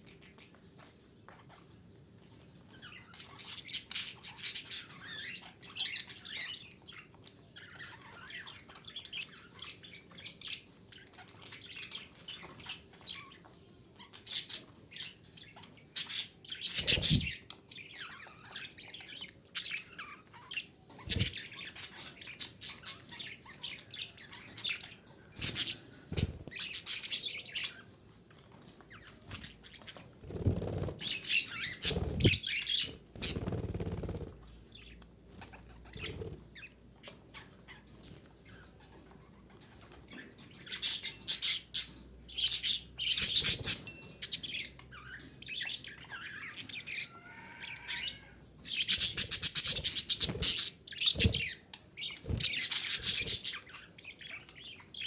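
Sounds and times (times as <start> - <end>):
budgerigars chirping: 14.1 - 27.8, 31.0 - 34.2, 40.1 - 55.0
wing flapping: 16.8 - 17.3, 21.1 - 21.4, 30.2 - 34.5.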